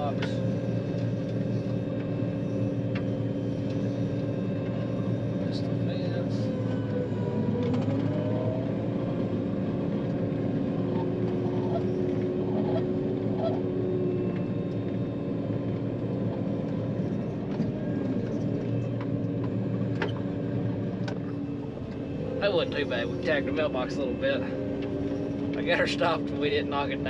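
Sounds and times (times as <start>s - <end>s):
diesel engine drone: 0.0s - 27.0s
steady whining tones: 0.0s - 27.0s.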